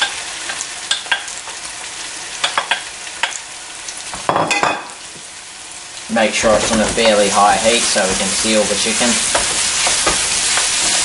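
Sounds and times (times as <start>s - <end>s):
meat sizzling in oil: 0.0s - 11.0s
wooden spoon scraping a pan: 6.2s - 11.0s.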